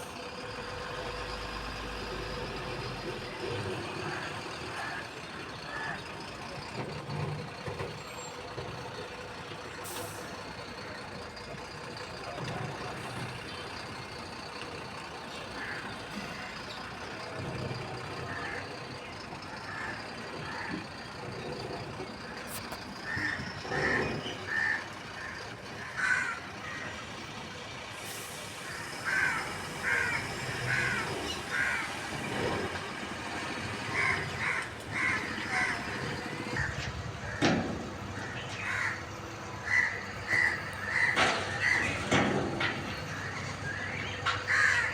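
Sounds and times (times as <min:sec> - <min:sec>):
truck engine running: 0:00.0 - 0:44.9
crows cawing: 0:04.0 - 0:06.0, 0:15.6 - 0:16.6, 0:18.2 - 0:18.7, 0:19.5 - 0:20.8, 0:23.0 - 0:27.0, 0:28.7 - 0:32.0, 0:33.9 - 0:37.6, 0:38.2 - 0:42.0, 0:43.1 - 0:44.9.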